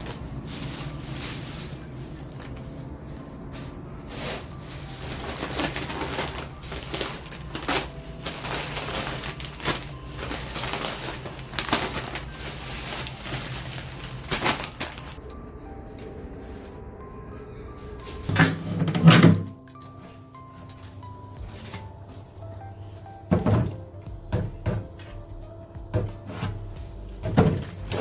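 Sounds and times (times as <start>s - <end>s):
plastic bags crinkling: 0.0s - 15.3s.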